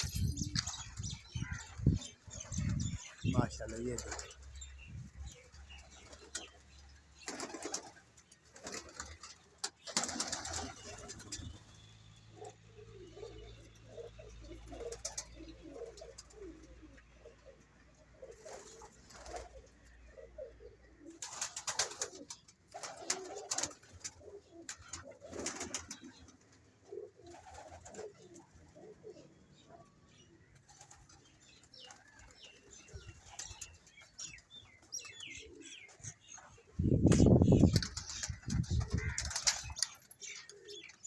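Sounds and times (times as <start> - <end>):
pigeons cooing: 12.3 - 41.0.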